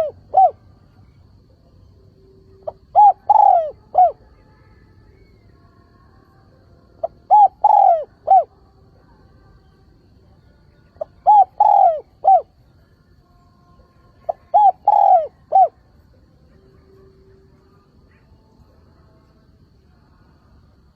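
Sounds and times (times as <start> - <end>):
dove cooing: 0.0 - 0.6, 2.5 - 4.3, 7.0 - 8.5, 11.0 - 12.6, 14.2 - 15.9.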